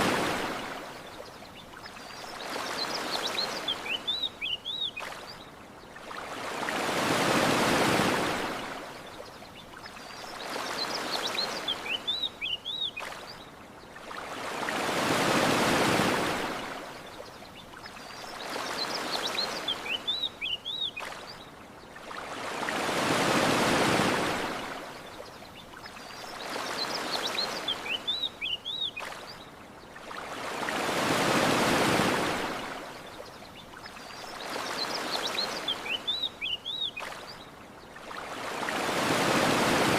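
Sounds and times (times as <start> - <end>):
ocean waves washing ashore: 0.0 - 39.9.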